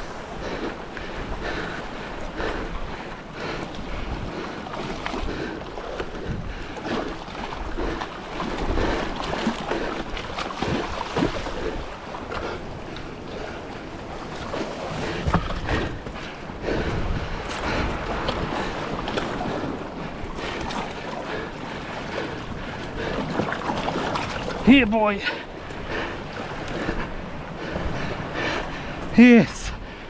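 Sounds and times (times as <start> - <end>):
sea swell surging against rocks: 0.0 - 29.9
wind buffeting microphone: 0.0 - 30.0
short splashes and knocks: 8.4 - 13.1, 14.4 - 16.4.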